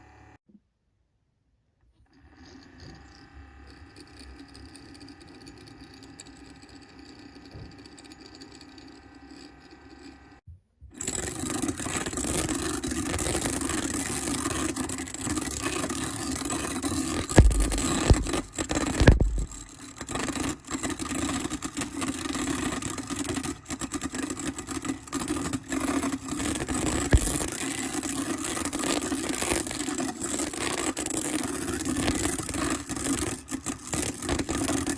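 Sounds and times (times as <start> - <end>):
magnetic stirrer motor hum: 11.0 - 34.9
knocks: 17.4 - 19.6.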